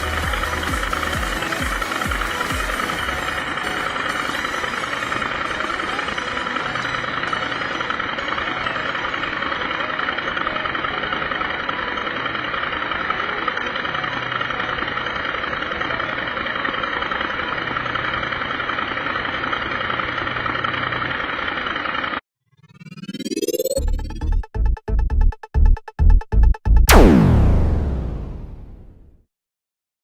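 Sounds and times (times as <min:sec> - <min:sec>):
engine running steadily: 0:00.0 - 0:22.2.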